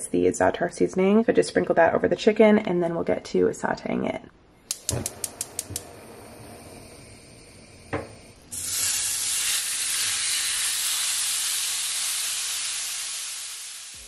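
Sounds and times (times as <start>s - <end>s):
chicken frying with loud sizzle: 8.5s - 14.0s.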